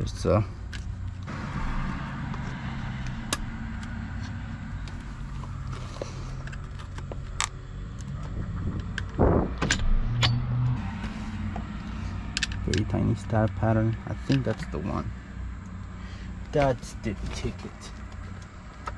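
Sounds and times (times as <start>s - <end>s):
low steady hum: 0.0s - 18.9s.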